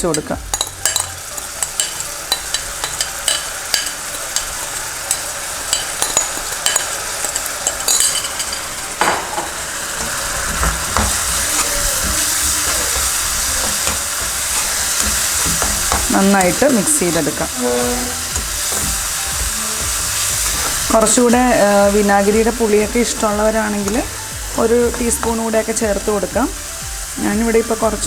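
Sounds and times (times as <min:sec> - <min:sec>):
vegetables sizzling in pan: 0:00.0 - 0:28.0
spoon scraping and clicking on pan: 0:10.0 - 0:16.7.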